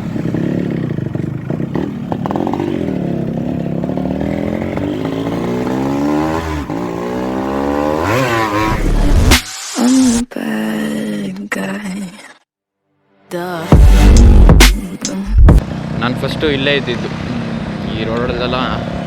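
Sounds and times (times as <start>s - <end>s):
motorcycle engine accelerating: 0.0s - 9.4s.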